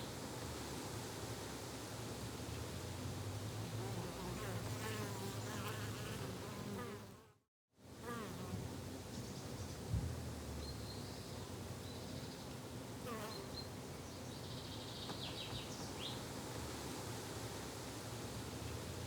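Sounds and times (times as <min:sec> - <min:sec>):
bees and flies buzzing: 0:03.7 - 0:07.4.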